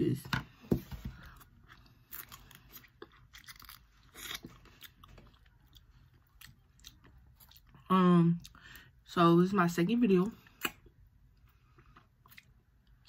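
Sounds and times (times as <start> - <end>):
chewing crab legs with crunches: 1.4 - 7.8.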